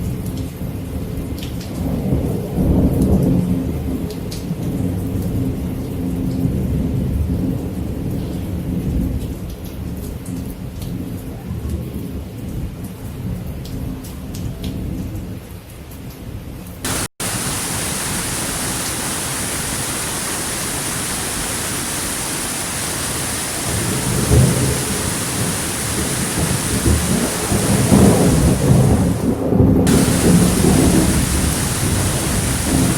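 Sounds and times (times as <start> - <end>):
heavy rain hissing: 16.9 - 32.9
rolling thunder: 16.9 - 32.9.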